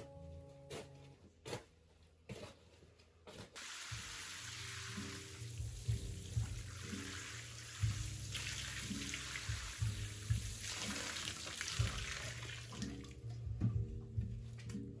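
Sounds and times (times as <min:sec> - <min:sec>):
water running from tap: 0:03.6 - 0:13.2
background music with beat: 0:03.8 - 0:15.0.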